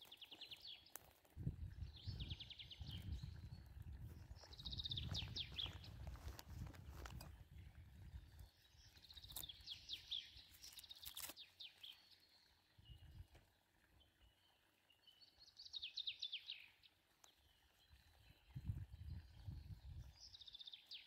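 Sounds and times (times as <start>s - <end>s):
twig fire crackling: 0.0s - 8.2s, 8.8s - 12.0s
songbird chirping: 0.0s - 21.0s.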